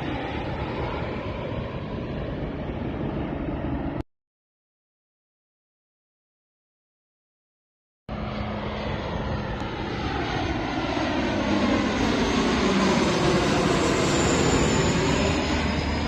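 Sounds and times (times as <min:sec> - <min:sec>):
airplane engines roaring by: 0:00.0 - 0:04.0, 0:08.1 - 0:16.0.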